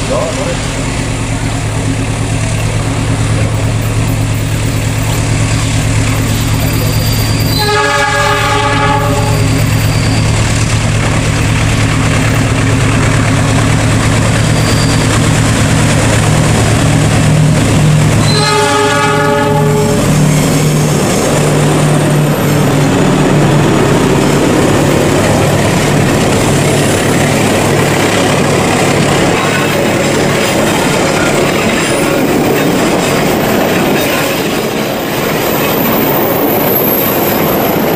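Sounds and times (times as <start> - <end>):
diesel locomotive engine drone: 0.0 - 37.9
train horn blast: 7.3 - 10.3, 18.2 - 20.3
wheels on rails: 8.8 - 37.9.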